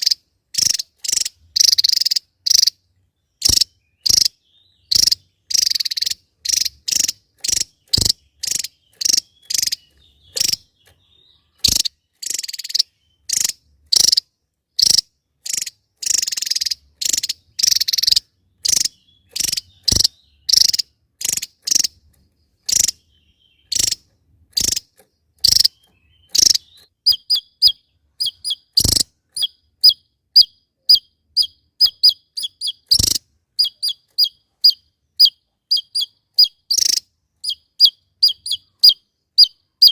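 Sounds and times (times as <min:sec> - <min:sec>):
bird calling harsh notes: 0:00.0 - 0:22.0, 0:22.6 - 0:39.9
sharp clipped bird chirps: 0:00.0 - 0:39.9.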